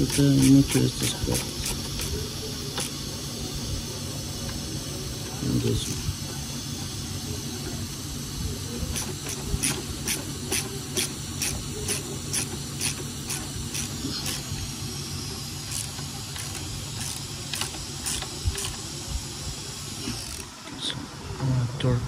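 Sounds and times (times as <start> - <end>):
hand ratchet clicking: 0.0 - 3.1, 8.9 - 14.7, 15.6 - 19.0, 20.0 - 20.5
steady hum and hiss: 0.0 - 22.0.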